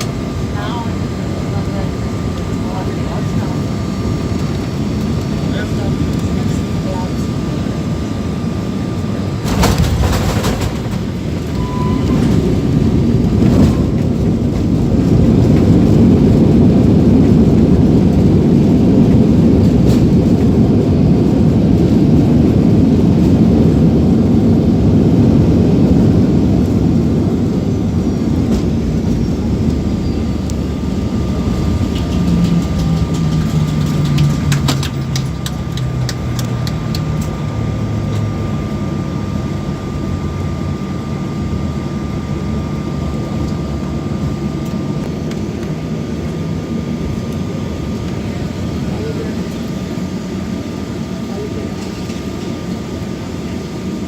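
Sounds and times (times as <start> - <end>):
aircraft landing jolt: 0.0 - 37.0
jet engines roaring in reverse thrust: 0.0 - 54.0.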